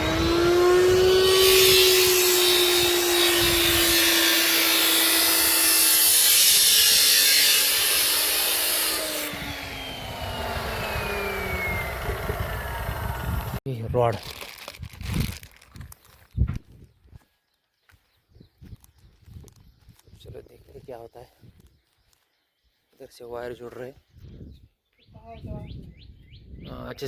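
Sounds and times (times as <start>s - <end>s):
angle grinder grinding: 0.0s - 13.6s
angle grinder whining: 0.0s - 13.6s.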